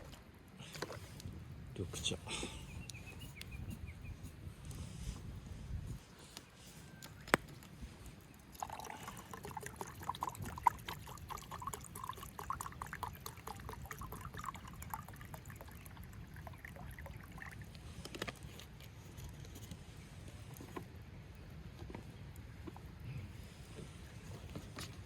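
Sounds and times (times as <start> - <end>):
drink pouring into cup: 8.3 - 18.5.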